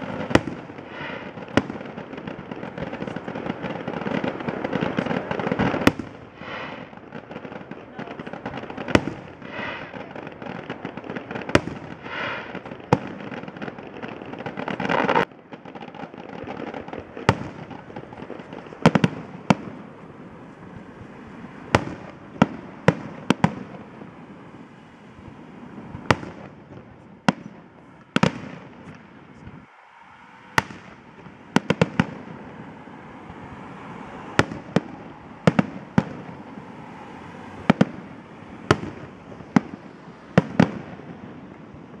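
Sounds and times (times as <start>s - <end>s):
fireworks bangs: 0.0s - 42.0s
fireworks crackling: 0.0s - 42.0s
swelling whoosh noise: 27.6s - 38.7s.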